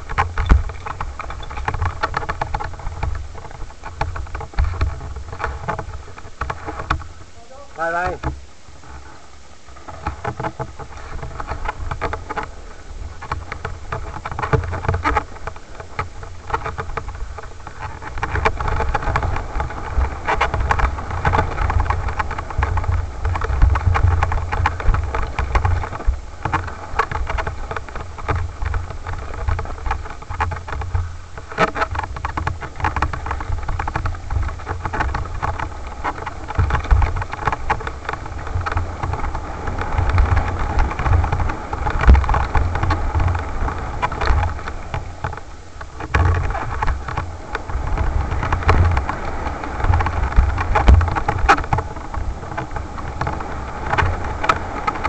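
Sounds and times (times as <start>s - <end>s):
wind rumble: 0.0s - 55.0s.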